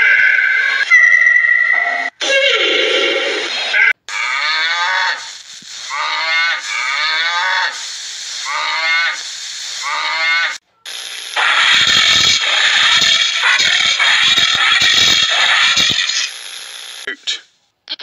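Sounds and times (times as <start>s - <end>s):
loud harsh noisy sound: 7.7s - 17.1s.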